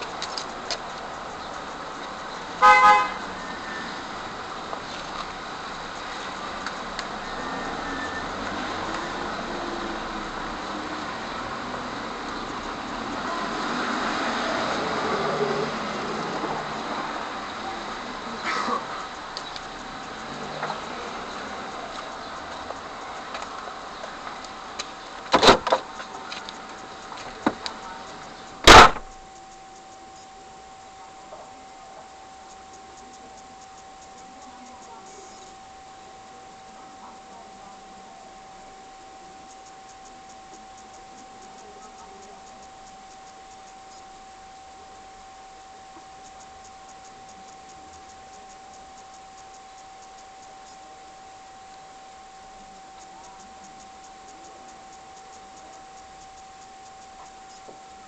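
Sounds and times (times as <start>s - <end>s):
road traffic noise: 0.0s - 31.6s
car horn double toot: 2.6s - 3.9s
car door shutting with thud: 25.3s - 25.8s, 28.7s - 29.1s.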